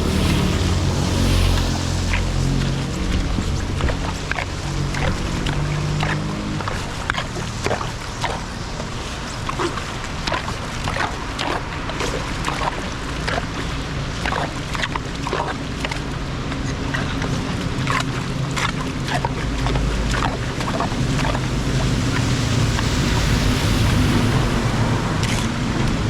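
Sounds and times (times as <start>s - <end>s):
low rumble: 0.0s - 7.1s, 16.0s - 26.0s
rain: 0.0s - 26.0s
water splashes: 0.0s - 26.0s.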